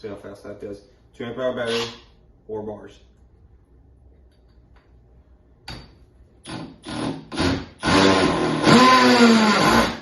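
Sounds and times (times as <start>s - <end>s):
hammer drill driving a screw: 6.4s - 10.0s.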